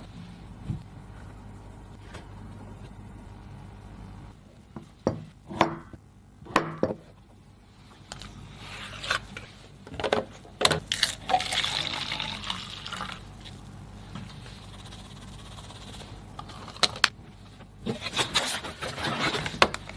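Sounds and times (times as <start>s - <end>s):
pouring noise: 11.1s - 13.3s.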